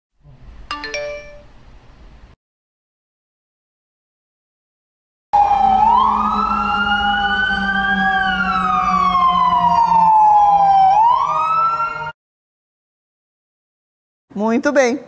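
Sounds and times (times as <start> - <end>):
fire engine siren wailing: 5.4 - 12.2.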